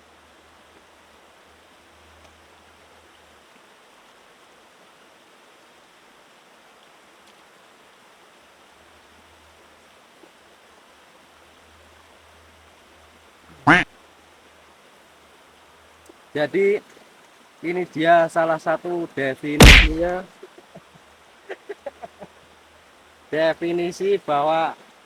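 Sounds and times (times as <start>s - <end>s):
stream flowing: 0.0s - 25.0s.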